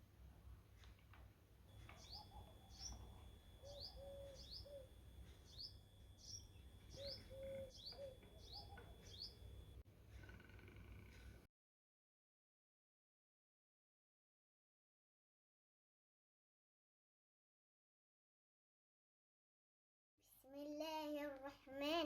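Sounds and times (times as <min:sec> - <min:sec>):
lower bird call: 0:01.7 - 0:11.3
small birds chirping: 0:01.7 - 0:11.4.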